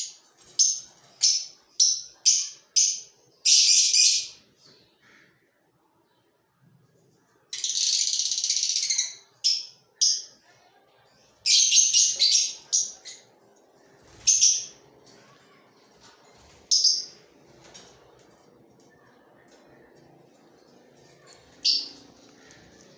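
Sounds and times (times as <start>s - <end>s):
lovebirds calling: 11.5s - 13.4s.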